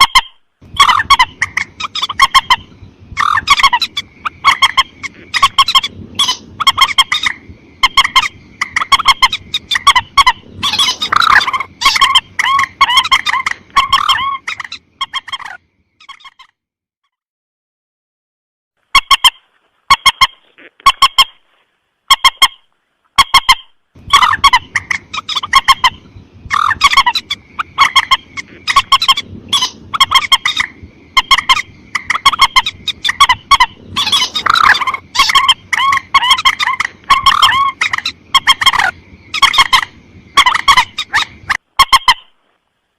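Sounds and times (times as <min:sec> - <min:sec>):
bird calls: 0:00.0 - 0:16.5, 0:19.0 - 0:42.5.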